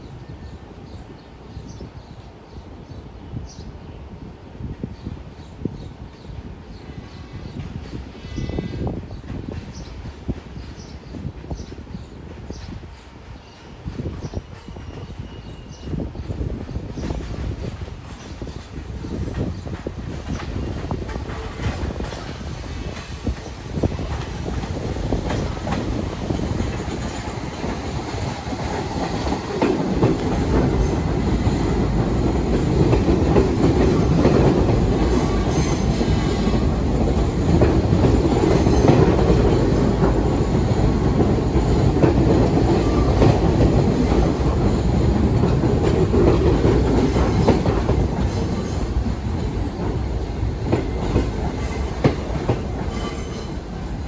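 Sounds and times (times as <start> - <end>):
subway train rumbling past: 0.0 - 54.0.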